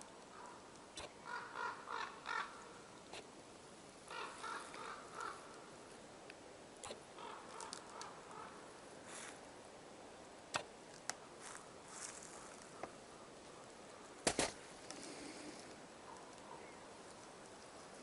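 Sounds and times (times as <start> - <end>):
crow cawing: 1.2 - 2.8, 4.1 - 5.7, 7.2 - 8.6.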